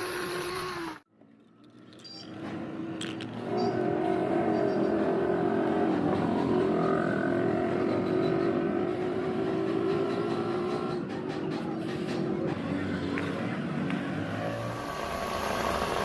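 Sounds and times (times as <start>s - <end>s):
power tool motor running: 0.0s - 1.0s.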